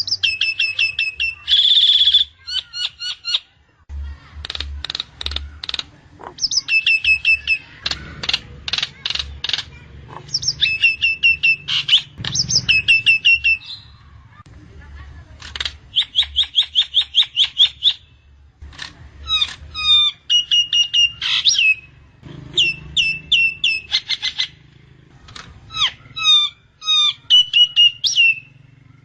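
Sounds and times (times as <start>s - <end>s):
starling whistling: 0.0s - 3.4s, 6.4s - 7.7s, 10.3s - 14.0s, 15.9s - 18.1s, 19.3s - 22.0s, 22.6s - 24.6s, 25.7s - 28.6s
bird clicks: 4.4s - 6.4s, 7.8s - 9.8s, 15.4s - 16.1s.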